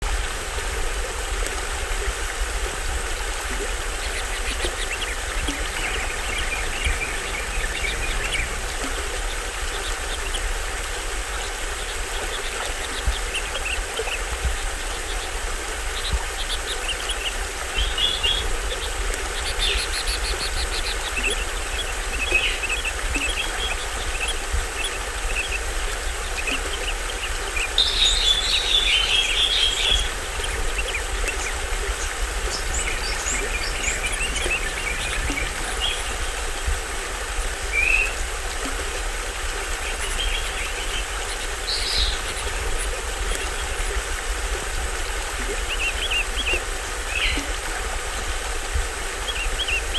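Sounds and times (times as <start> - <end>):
small waterfall splashing: 0.0 - 49.9
birds chirping: 3.4 - 44.5, 45.4 - 48.2
rapid high bird calls: 3.9 - 10.5, 14.9 - 36.7.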